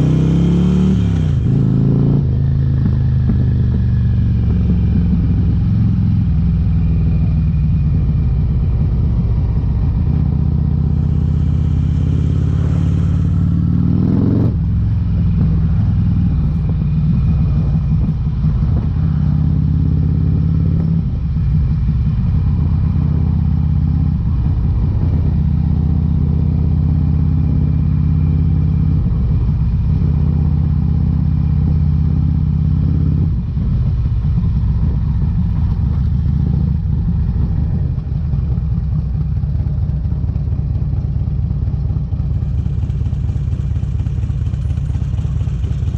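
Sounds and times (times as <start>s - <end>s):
motorcycle engine while riding: 0.0s - 45.9s.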